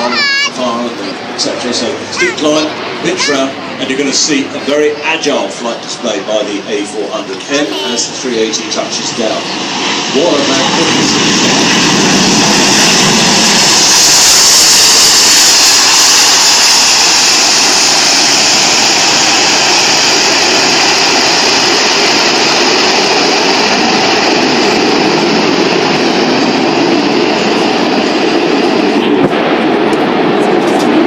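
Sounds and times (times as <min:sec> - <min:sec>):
jet airliner landing: 0:00.0 - 0:31.0
turboprop aircraft taking off: 0:00.0 - 0:31.0.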